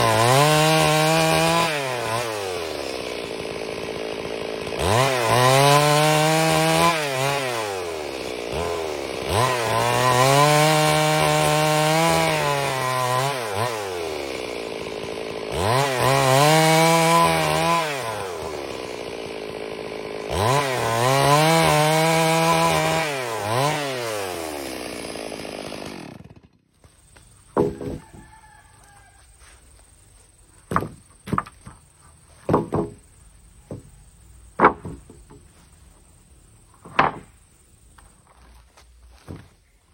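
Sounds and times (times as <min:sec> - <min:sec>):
chainsaw cutting wood: 0:00.0 - 0:35.9, 0:36.6 - 0:39.7
wood knocking: 0:27.5 - 0:28.4, 0:30.6 - 0:31.8, 0:32.4 - 0:33.0, 0:34.6 - 0:35.5, 0:36.7 - 0:37.4.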